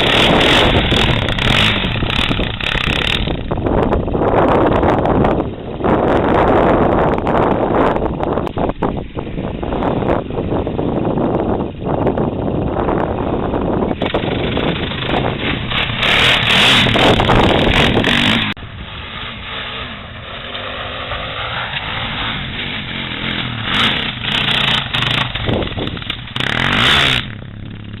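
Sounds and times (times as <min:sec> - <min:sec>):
off-road vehicle engine: 0:00.0 - 0:28.0
loud rushing bursts: 0:14.0 - 0:27.6.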